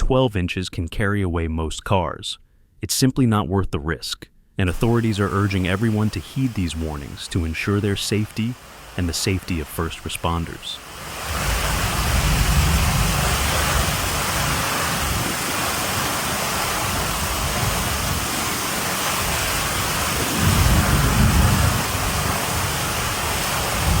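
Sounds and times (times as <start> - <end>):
heavy rain pouring: 4.8 - 24.0
low rumbling: 10.8 - 24.0.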